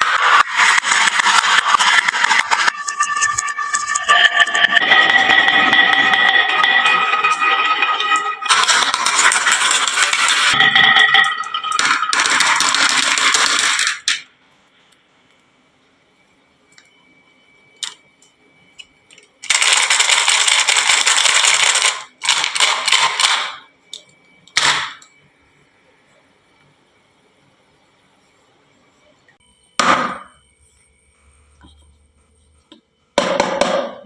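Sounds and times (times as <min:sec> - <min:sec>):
marbles rattling down wooden run: 0:00.8 - 0:14.0.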